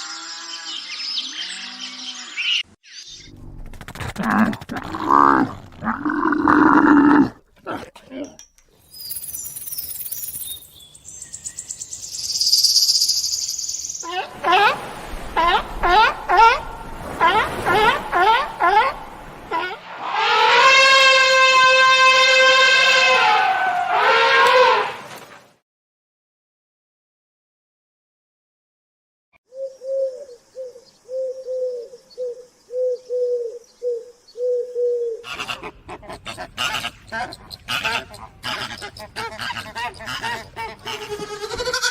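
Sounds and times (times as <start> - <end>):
high rapid chirping trill: 11.6 - 14.0
dove cooing: 29.5 - 41.0.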